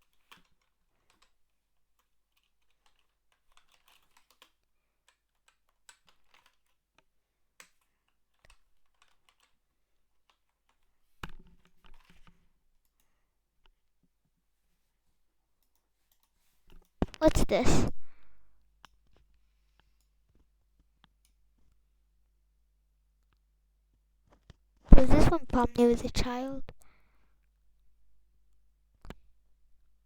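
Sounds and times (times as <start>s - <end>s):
typing on computer keyboard: 0.0s - 6.8s, 7.6s - 9.6s.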